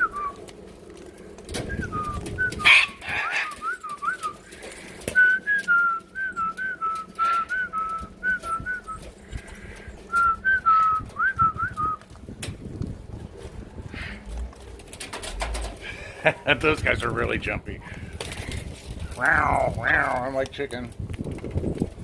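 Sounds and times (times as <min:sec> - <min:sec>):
bird whistled chirps: 0:01.6 - 0:04.4.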